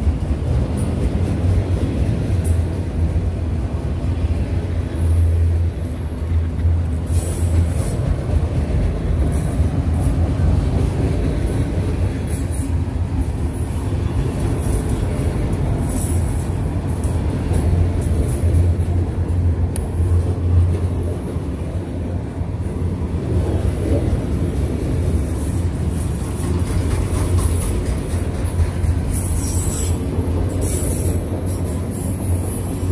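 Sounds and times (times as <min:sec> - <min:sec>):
train wheels rumbling on rail: 0:00.0 - 0:32.9
wheel squeal: 0:29.1 - 0:31.2.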